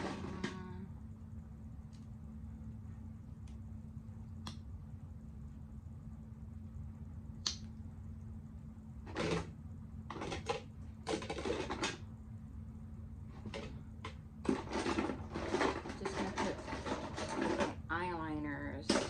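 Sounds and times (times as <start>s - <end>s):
plastic items clattering: 10.1s - 12.0s, 14.4s - 17.8s.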